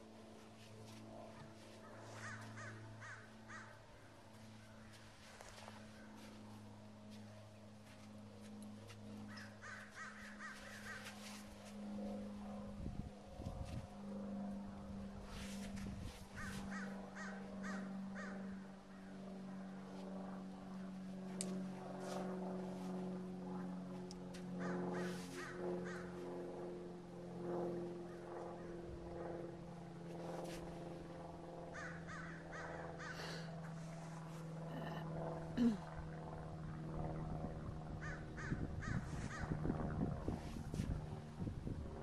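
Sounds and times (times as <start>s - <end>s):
steady low hum: 0.0s - 42.0s
birds calling: 1.8s - 3.8s, 9.2s - 11.4s, 16.3s - 19.1s.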